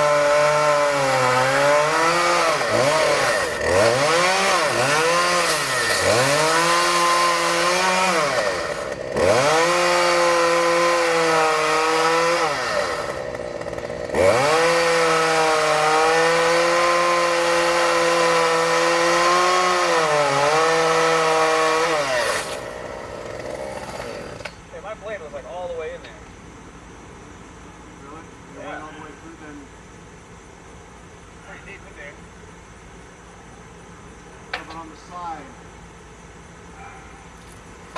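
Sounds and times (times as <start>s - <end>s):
chainsaw revving: 0.0s - 24.7s.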